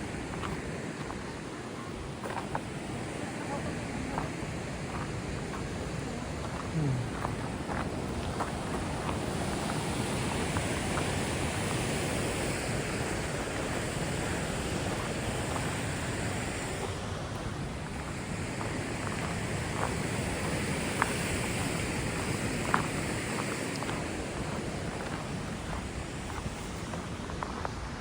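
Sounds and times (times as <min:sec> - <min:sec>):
river rapids rushing: 0:00.0 - 0:27.2.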